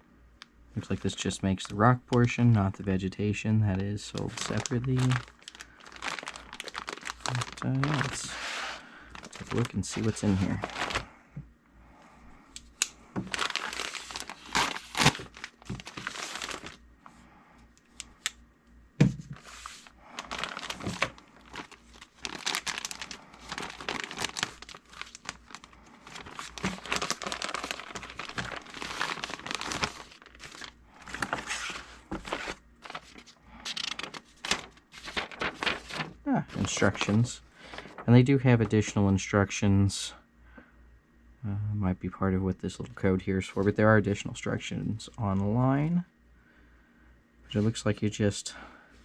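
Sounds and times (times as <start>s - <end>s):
packaging crinkling and tearing: 3.8s - 11.1s, 13.2s - 16.8s, 19.4s - 38.0s.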